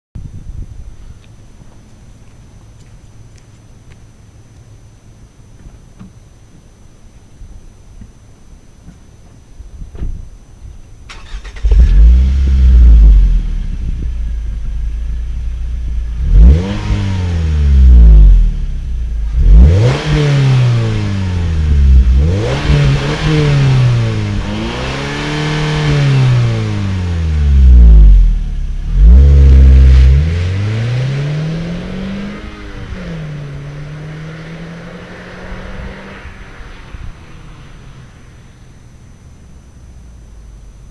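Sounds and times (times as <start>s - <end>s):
car exhaust revving: 11.2s - 40.9s.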